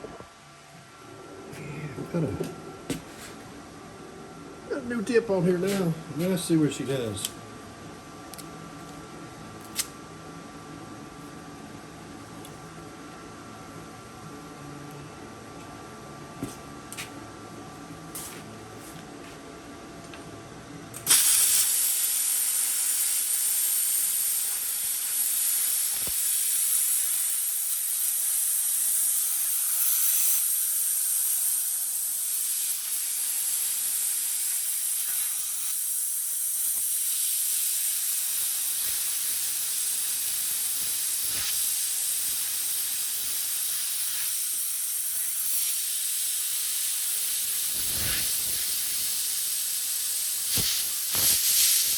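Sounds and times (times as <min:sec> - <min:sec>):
plasma arc hissing cutting steel: 0:21.0 - 0:51.9
plasma cutter hum: 0:21.0 - 0:51.9.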